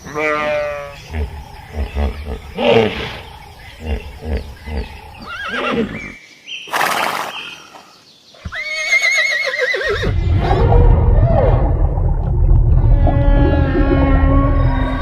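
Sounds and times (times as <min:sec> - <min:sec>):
horse whinnying: 0:05.2 - 0:07.3, 0:08.4 - 0:10.2
low rumble: 0:10.1 - 0:15.0.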